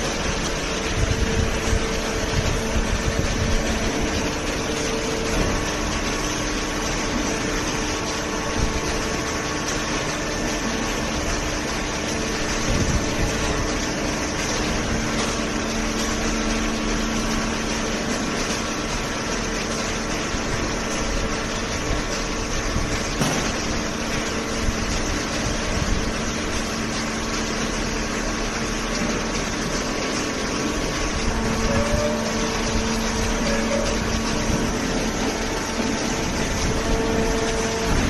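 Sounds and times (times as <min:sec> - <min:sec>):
baler motor and pump humming: 0:00.0 - 0:38.0.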